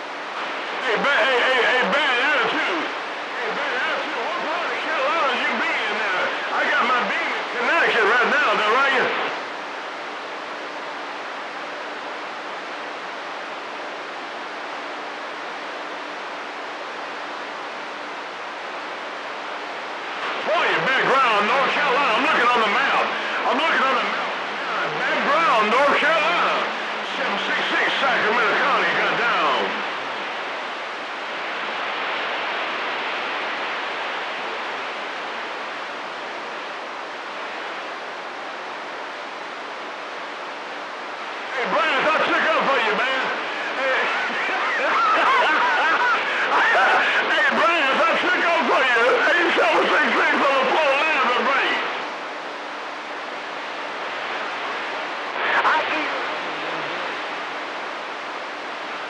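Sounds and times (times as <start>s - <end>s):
radio static hiss: 0.0s - 59.0s.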